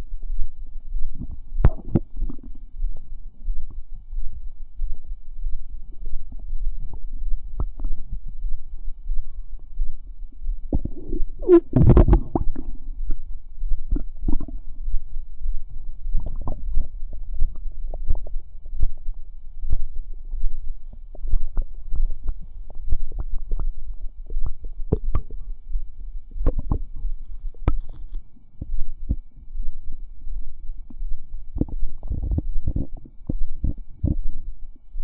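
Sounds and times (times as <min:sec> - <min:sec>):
stomach pops and bubbling: 0:01.2 - 0:02.6, 0:06.3 - 0:08.0, 0:10.7 - 0:13.2, 0:13.9 - 0:14.6, 0:16.2 - 0:19.1, 0:21.1 - 0:25.5, 0:26.4 - 0:29.3, 0:31.6 - 0:34.4.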